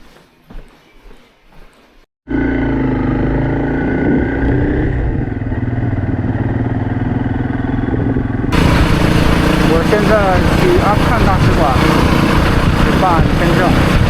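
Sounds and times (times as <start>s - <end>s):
motorcycle engine running: 2.3s - 14.0s.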